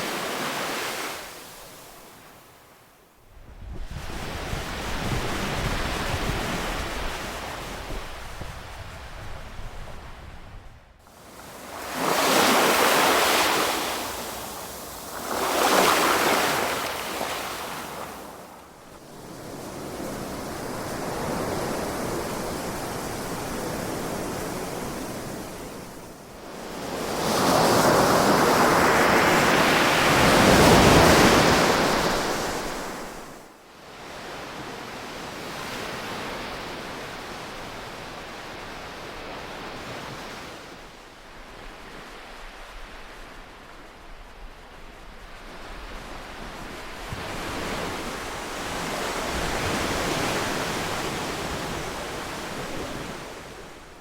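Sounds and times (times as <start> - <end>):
ocean waves washing up shore: 11.1 - 54.0.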